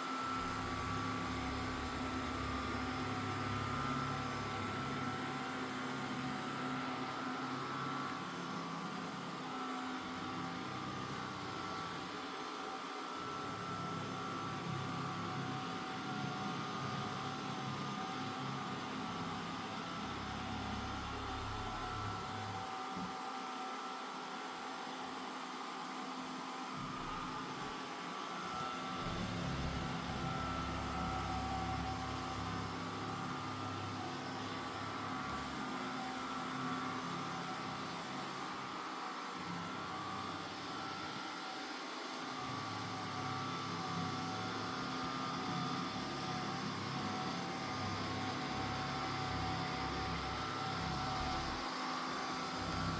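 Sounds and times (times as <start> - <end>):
robot vacuum motor humming: 0.1 - 12.6, 26.8 - 52.9.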